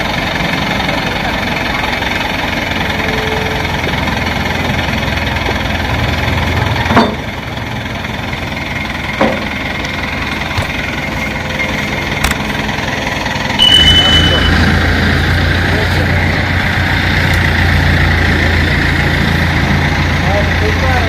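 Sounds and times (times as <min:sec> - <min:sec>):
diesel engine idling: 0:00.0 - 0:21.0
sharp metal clank: 0:13.6 - 0:15.2.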